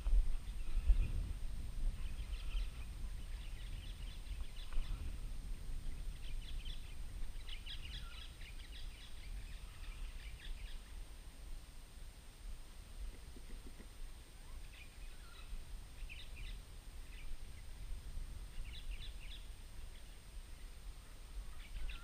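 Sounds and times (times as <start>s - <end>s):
steady low rumble: 0.0s - 13.0s
birds chirping: 0.3s - 11.0s, 13.2s - 17.9s, 18.5s - 22.0s.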